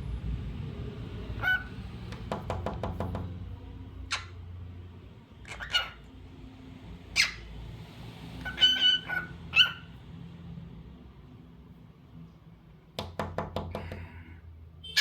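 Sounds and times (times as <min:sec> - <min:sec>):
cockatiel chirping: 0:05.4 - 0:06.0, 0:07.2 - 0:07.4, 0:08.4 - 0:09.9.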